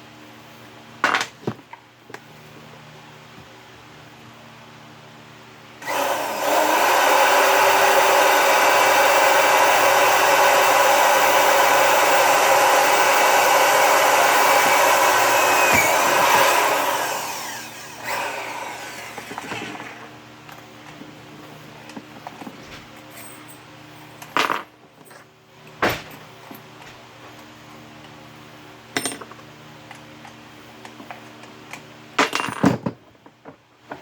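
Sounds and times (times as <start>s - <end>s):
electric power tool running: 5.8s - 19.8s
power tool spinning down whine: 5.8s - 19.8s.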